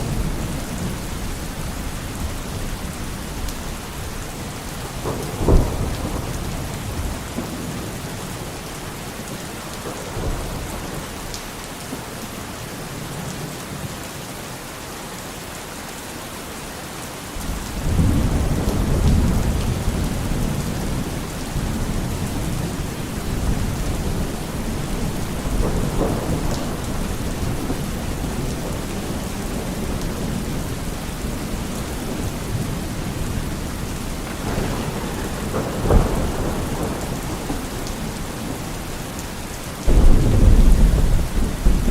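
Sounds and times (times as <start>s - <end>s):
rolling thunder: 0.0s - 8.6s, 17.4s - 41.9s
steady rain falling: 0.0s - 41.9s
sharp thunderclap: 4.8s - 8.0s, 17.4s - 38.9s, 39.9s - 41.9s.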